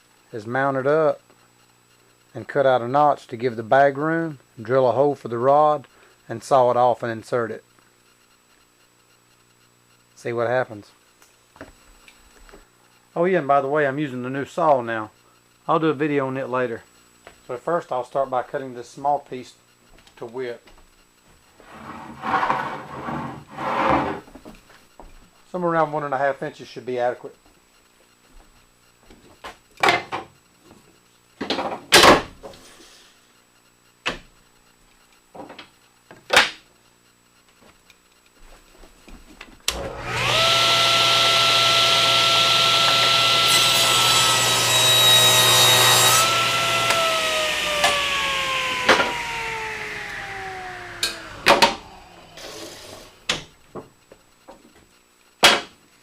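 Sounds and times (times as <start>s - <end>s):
table saw whining: 39.7s - 53.6s
saw blade cutting wood: 39.8s - 53.4s.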